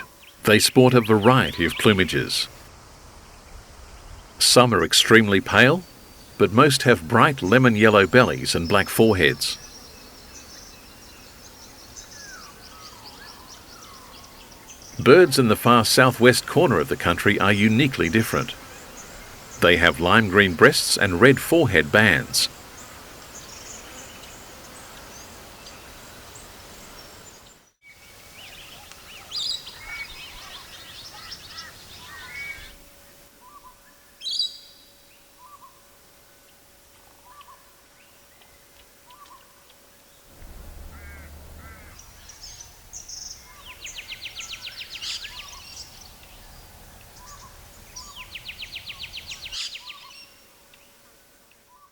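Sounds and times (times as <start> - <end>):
birds chirping and whistling: 40.4 - 50.3
bird trills: 40.4 - 50.8.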